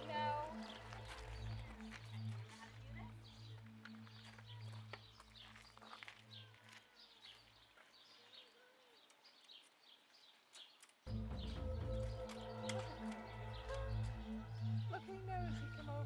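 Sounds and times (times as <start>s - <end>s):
low background music: 0.0s - 5.8s, 11.1s - 16.0s
small birds chirping: 0.0s - 16.0s.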